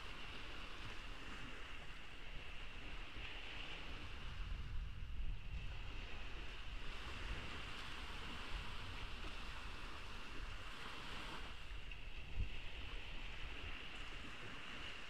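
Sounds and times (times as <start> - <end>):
ocean waves washing onto beach: 0.0 - 15.0
wind rumbling on microphone: 0.0 - 15.0.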